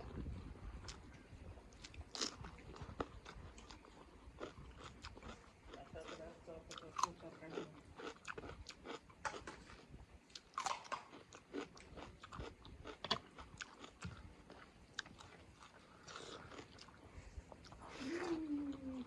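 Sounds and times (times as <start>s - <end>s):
person chewing and crunching food: 0.0s - 19.0s.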